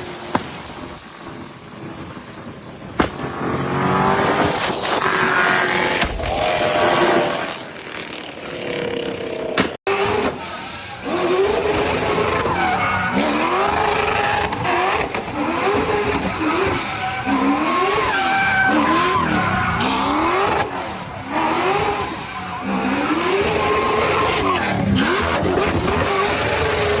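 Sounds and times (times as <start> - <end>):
tyres squealing and skidding: 4.5 - 27.0
car engine revving hard: 9.9 - 27.0.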